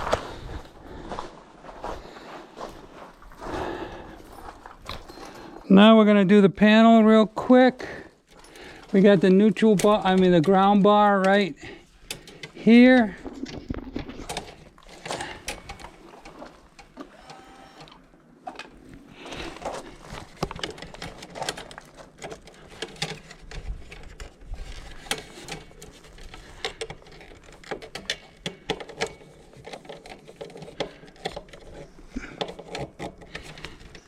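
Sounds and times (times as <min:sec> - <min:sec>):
clicks and taps on wires and screws: 0:20.1 - 0:34.0.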